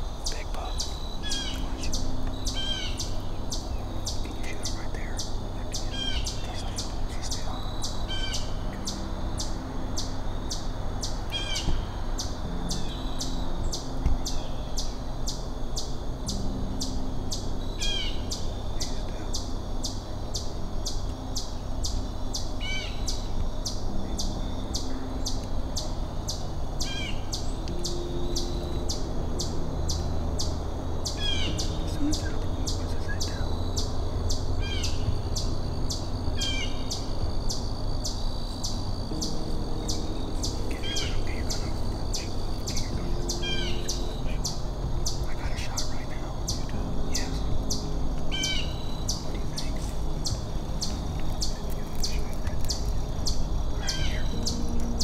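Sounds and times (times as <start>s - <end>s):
bird chirping: 0.0s - 55.0s
steady low rumble: 0.0s - 55.0s.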